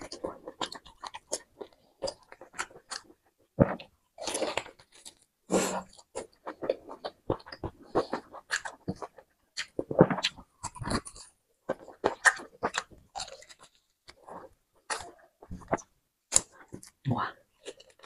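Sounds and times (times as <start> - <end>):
wet chewing and biting: 0.0 - 17.0.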